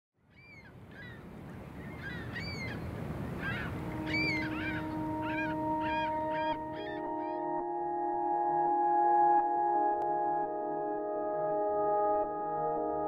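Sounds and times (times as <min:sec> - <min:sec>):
birds crying: 0:00.3 - 0:07.6
ambient music drone: 0:02.4 - 0:13.0.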